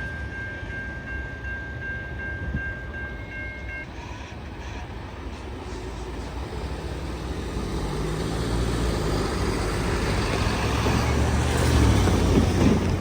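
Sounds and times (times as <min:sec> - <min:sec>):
heavy vehicle passing: 0:05.7 - 0:13.0.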